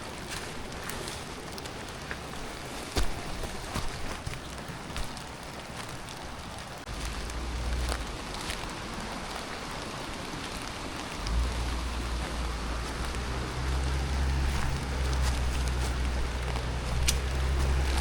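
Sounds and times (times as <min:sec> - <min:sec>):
rain falling: 0:00.0 - 0:18.0
low rumble: 0:06.9 - 0:09.3, 0:11.1 - 0:18.0.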